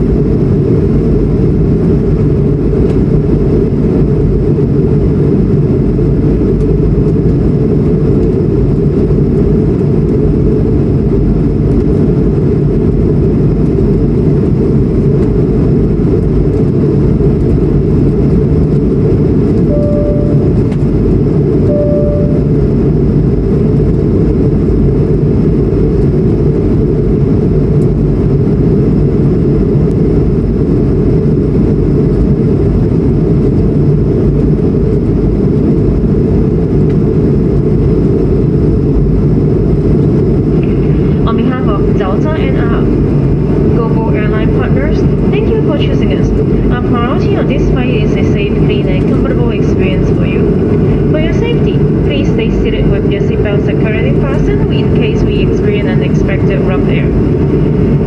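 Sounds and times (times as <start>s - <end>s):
aircraft cabin roar: 0.0s - 58.0s
short chime tones: 19.7s - 20.7s, 21.7s - 22.6s.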